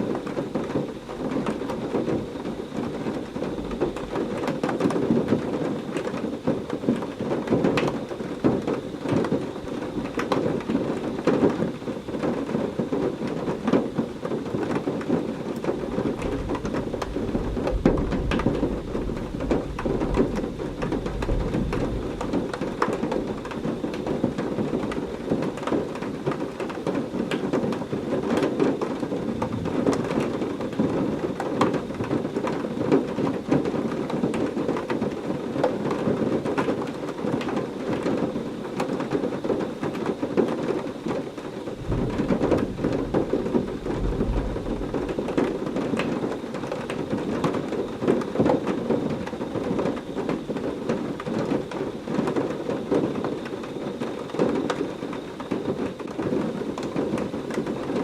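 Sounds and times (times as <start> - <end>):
heavy rain pattering: 0.0 - 58.0
thunder rumbling: 1.2 - 5.6, 14.7 - 26.3, 27.2 - 32.6, 41.6 - 48.2.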